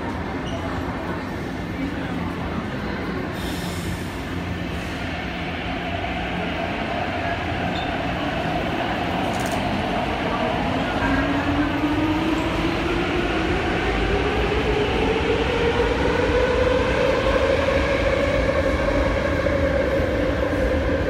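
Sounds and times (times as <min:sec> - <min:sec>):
train running with steady rumble: 0:00.0 - 0:21.0.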